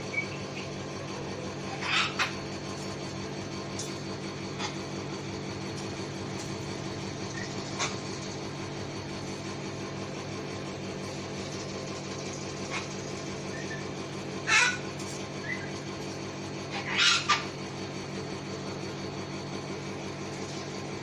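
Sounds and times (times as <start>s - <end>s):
machine hum with low tones: 0.0s - 21.0s
cockatoos squawking: 1.6s - 2.4s, 12.6s - 15.7s, 16.7s - 17.5s.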